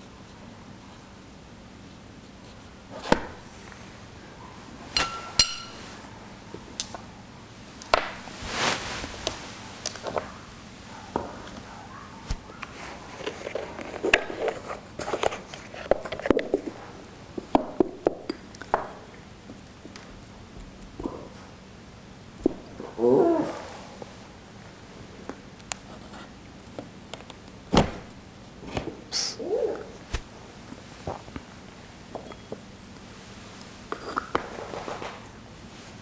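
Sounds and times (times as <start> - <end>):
ringing clink of dishes: 5.0 - 5.9, 32.2 - 32.6.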